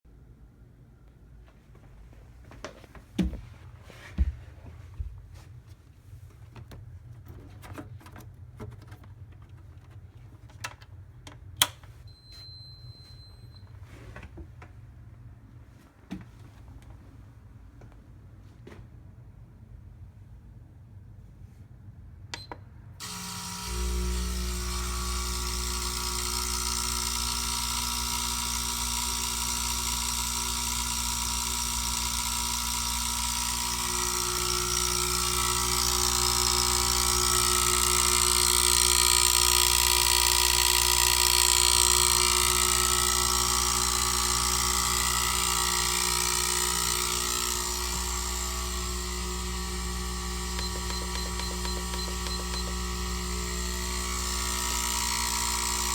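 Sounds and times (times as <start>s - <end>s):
treadmill buzzing: 23.0s - 55.9s
treadmill click: 37.8s - 54.0s.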